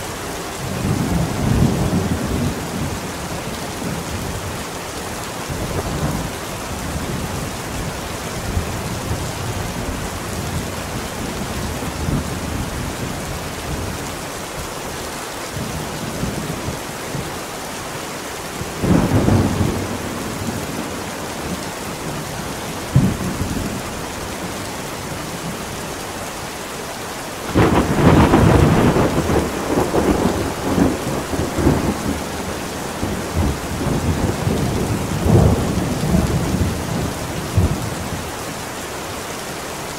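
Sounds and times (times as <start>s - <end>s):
heavy rain: 0.0s - 39.9s
thunder cracks and rumbling: 27.5s - 37.9s.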